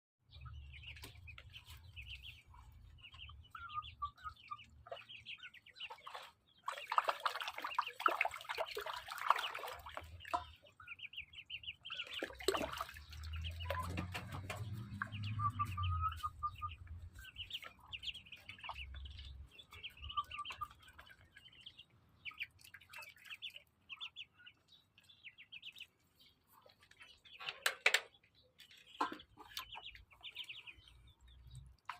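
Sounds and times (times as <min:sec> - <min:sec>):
ducklings peeping: 0:00.3 - 0:31.9
water splashing: 0:04.3 - 0:24.0.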